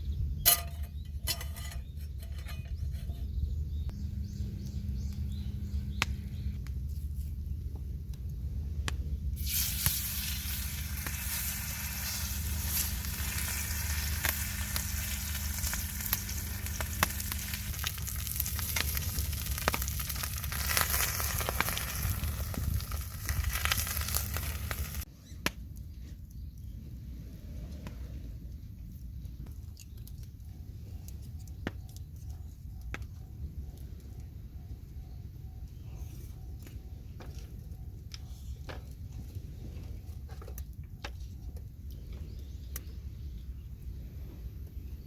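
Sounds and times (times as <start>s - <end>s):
steady low rumble: 0.0s - 45.0s
food sizzling in hot oil: 9.4s - 25.1s.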